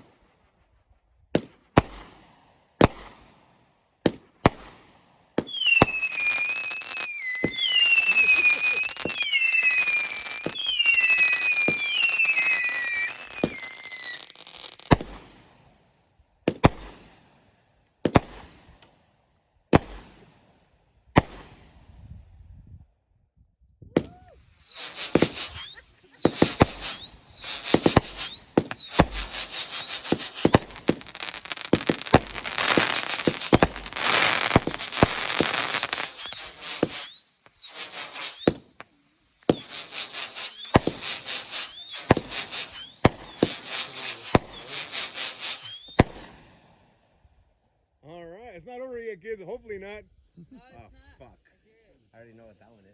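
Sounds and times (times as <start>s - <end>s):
fireworks crackling and popping: 0.0s - 15.8s, 16.5s - 17.4s, 18.0s - 19.0s, 19.7s - 22.2s, 24.0s - 46.9s
firework bangs: 1.4s - 3.4s, 4.0s - 15.7s, 16.5s - 17.4s, 18.0s - 18.8s, 19.7s - 20.5s, 21.1s - 22.1s, 24.0s - 46.8s
firework whistles: 5.4s - 15.5s, 24.0s - 46.7s.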